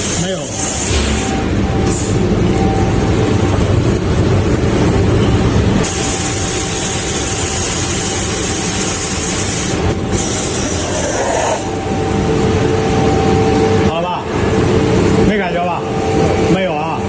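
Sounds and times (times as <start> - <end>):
sandblasting equipment rumbling: 0.0 - 12.7
high hiss of blasting air: 6.4 - 11.6.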